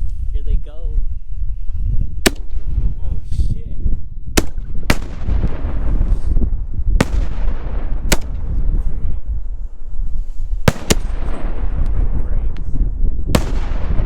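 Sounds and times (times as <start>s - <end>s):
steady low rumble: 0.0s - 14.0s
firework bangs: 4.4s - 9.1s, 10.6s - 14.0s.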